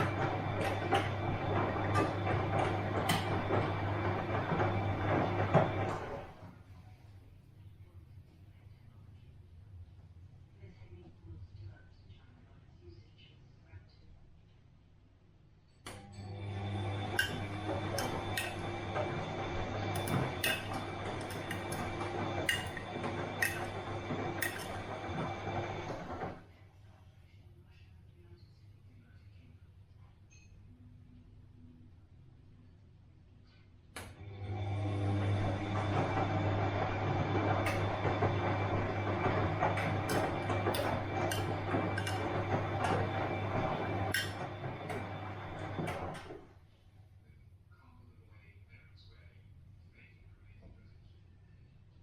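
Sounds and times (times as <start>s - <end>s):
washing machine motor hum: 0.0s - 6.8s, 15.9s - 26.5s, 34.0s - 46.7s.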